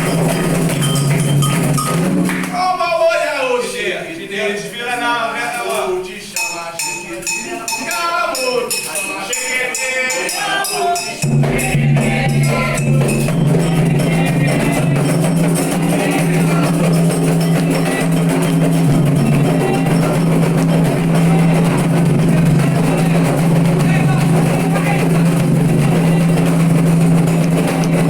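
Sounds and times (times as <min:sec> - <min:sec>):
rattles and percussion: 0:00.0 - 0:02.6, 0:06.4 - 0:28.0
ceremonial singing: 0:04.1 - 0:28.0.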